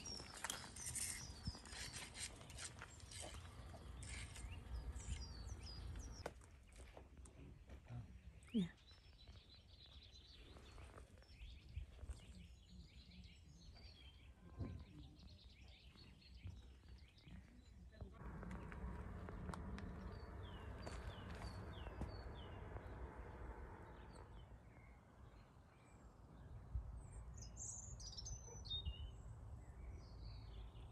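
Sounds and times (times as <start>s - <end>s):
faint birdsong: 0.0s - 30.9s
low rumble: 18.2s - 25.5s.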